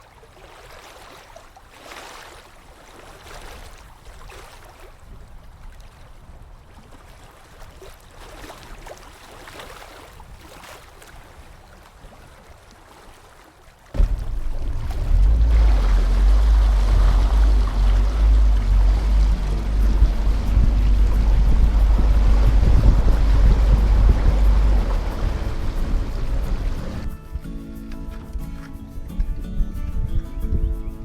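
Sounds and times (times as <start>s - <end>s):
water lapping against boat hull: 0.0s - 27.1s
loud low rumble: 14.0s - 27.1s.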